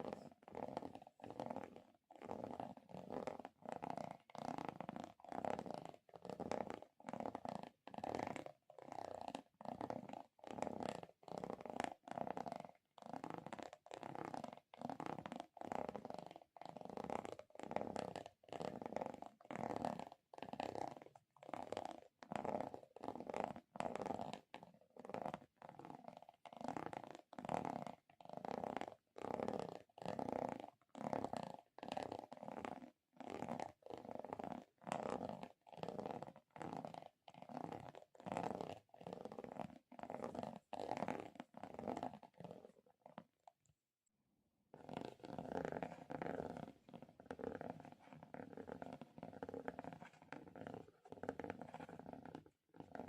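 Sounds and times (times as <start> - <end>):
soft rhythmic rubbing strokes: 44.8 - 53.0.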